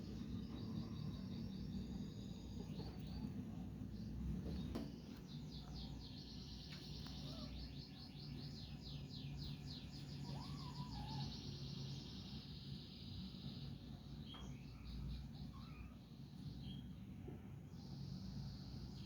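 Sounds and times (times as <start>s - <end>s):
steady high hum: 0.0s - 19.0s.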